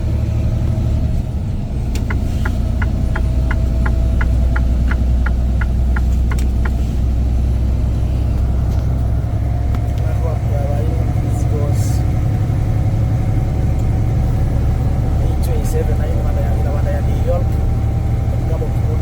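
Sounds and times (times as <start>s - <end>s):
truck engine droning: 0.0s - 19.0s
turn signal clicking: 1.9s - 6.9s.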